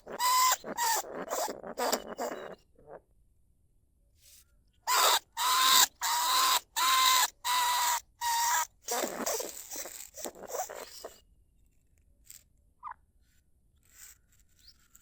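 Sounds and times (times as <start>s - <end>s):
rat chattering calls: 0.0s - 2.6s, 4.9s - 11.2s
rat squealing: 0.0s - 3.0s, 4.9s - 11.2s.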